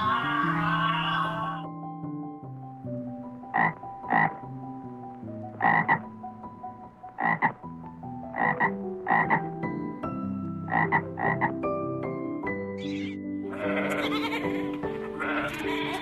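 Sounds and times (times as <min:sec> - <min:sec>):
soft music of held notes: 0:00.0 - 0:16.0
frog croaking: 0:03.4 - 0:04.7, 0:05.5 - 0:06.2, 0:07.0 - 0:09.6, 0:10.6 - 0:11.6.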